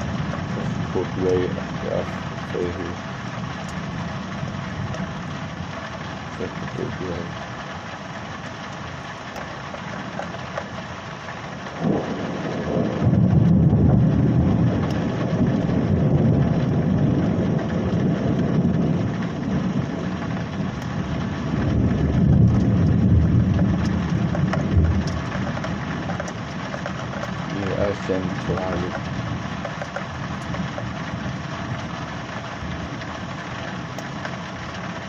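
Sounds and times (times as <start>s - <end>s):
low thunder rumble: 0.0s - 35.0s
rain hissing: 0.0s - 35.0s
thunder clap: 11.8s - 31.9s.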